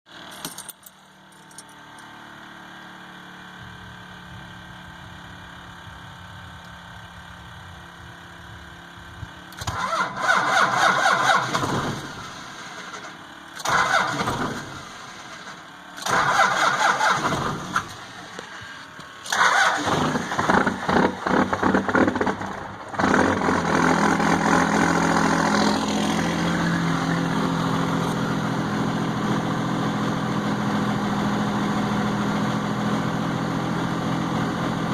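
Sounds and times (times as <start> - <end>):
diesel engine idling: 2.4 - 34.9
starter motor cranking: 9.5 - 23.9.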